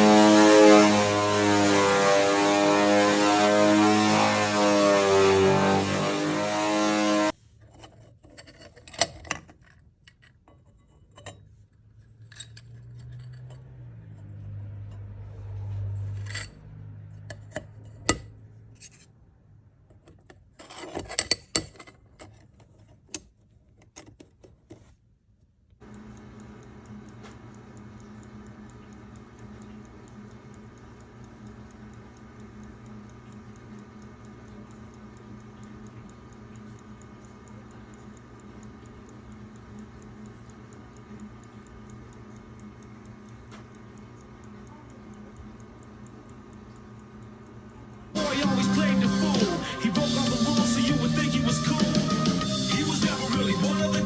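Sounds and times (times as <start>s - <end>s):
low hum: 0.0s - 7.4s, 11.1s - 19.7s
faint even ticking: 25.8s - 54.0s.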